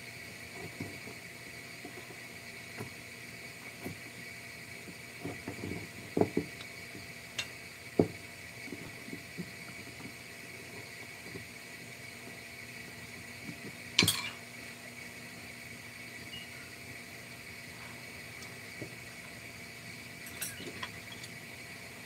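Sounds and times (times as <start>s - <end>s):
faint high-pitched hum: 12.2s - 22.0s.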